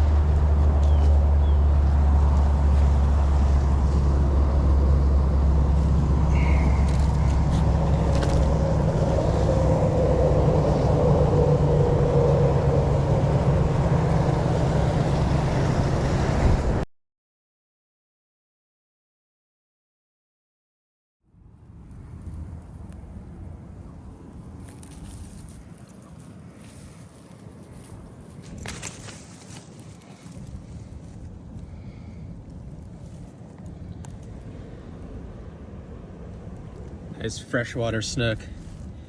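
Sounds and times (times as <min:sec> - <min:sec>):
engine humming: 0:00.0 - 0:16.8.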